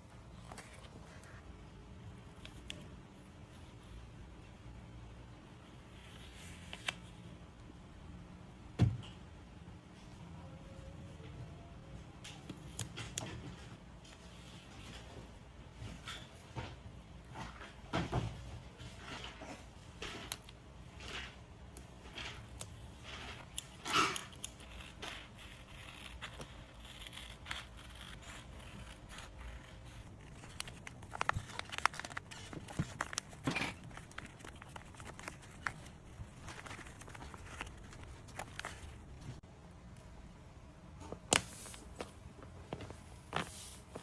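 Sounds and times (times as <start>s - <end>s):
paper rustling and crinkling: 22.0s - 39.4s
clicks and crackles: 25.7s - 39.4s.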